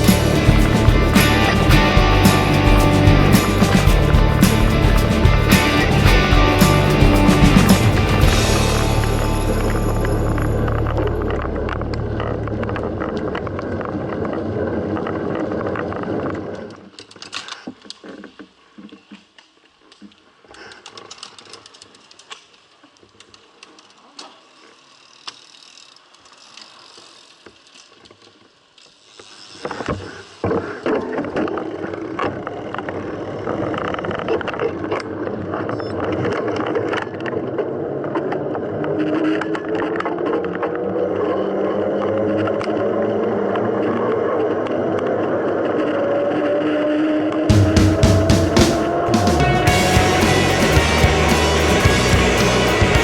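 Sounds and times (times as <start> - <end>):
bike rattling and clicking: 0.0 - 9.4, 20.7 - 35.2.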